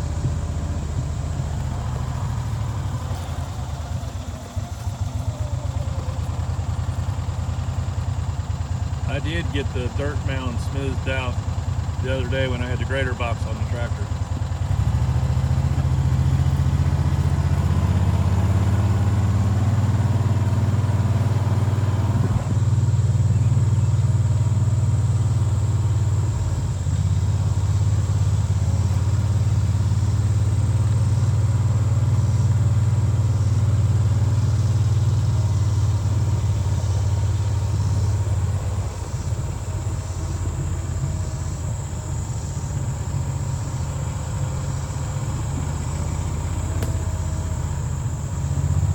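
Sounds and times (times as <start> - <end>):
vehicle engine running: 0.0 - 48.9.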